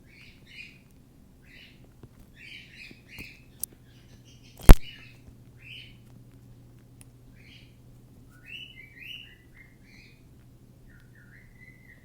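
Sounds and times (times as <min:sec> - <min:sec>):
loud sharp crack: 0:04.6 - 0:04.9
small click: 0:04.6 - 0:04.9
cockatiel chirping: 0:08.4 - 0:10.2, 0:10.9 - 0:12.0.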